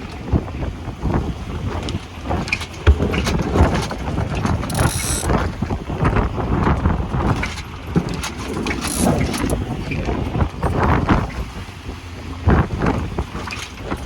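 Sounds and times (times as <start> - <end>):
wind buffeting microphone: 0.0 - 14.0
clicks and knocks: 1.9 - 5.4.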